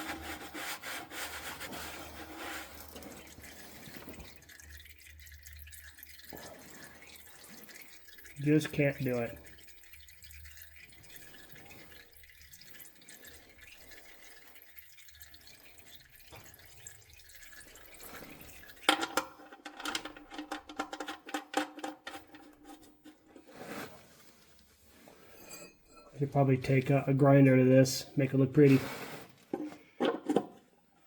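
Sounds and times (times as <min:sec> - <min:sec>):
oil dripping into drain pan: 0:01.6 - 0:23.4.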